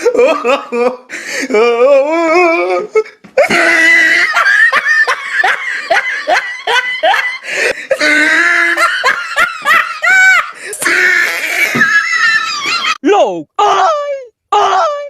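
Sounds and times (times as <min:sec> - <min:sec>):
high-pitched laughter: 0:03.4 - 0:13.0.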